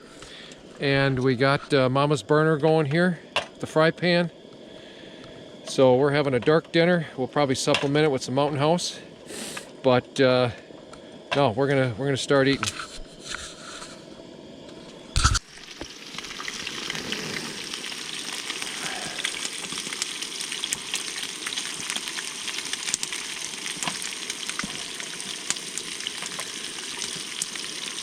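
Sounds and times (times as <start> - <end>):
fish sizzling in oil: 13.4 - 28.0.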